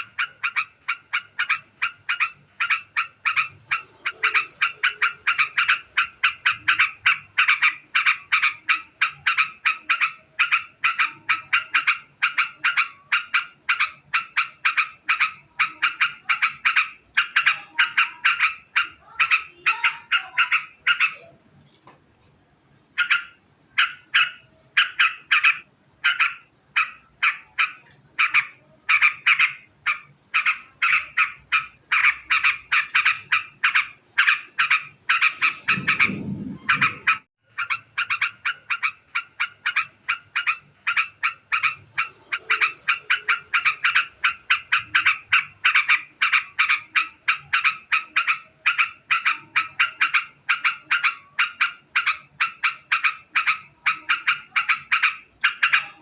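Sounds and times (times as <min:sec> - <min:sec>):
bulbul chattering call: 0:00.0 - 0:21.3, 0:23.0 - 0:56.0
low rumble: 0:35.4 - 0:37.2.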